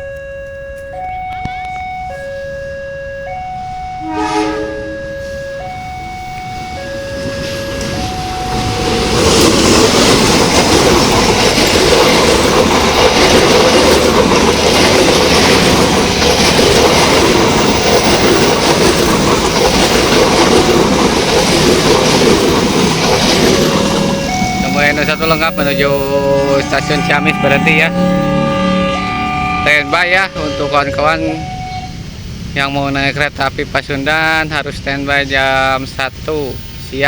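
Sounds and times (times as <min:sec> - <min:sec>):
train horn blast: 0:00.0 - 0:09.4, 0:23.6 - 0:32.2
level crossing alarm two tones: 0:00.0 - 0:10.2, 0:17.4 - 0:32.2
train wheels clattering on rails: 0:06.4 - 0:32.5.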